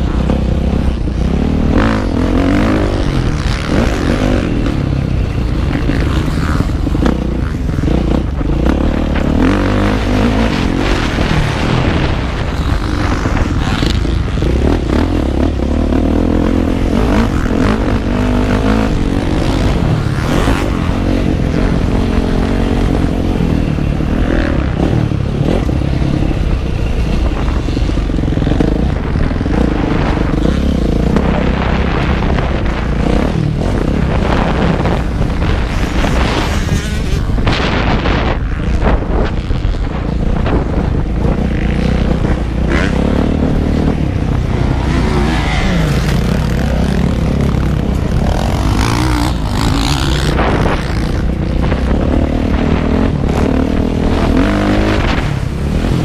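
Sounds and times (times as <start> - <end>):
motocross bike engine revving: 0.0 - 56.0
wind on microphone: 0.0 - 56.0.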